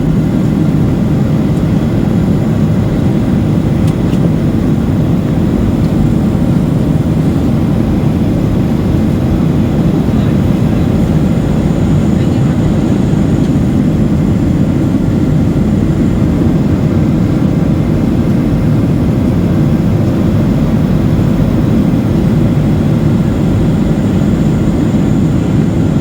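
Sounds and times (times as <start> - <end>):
airplane cabin engine rumble: 0.0 - 26.0.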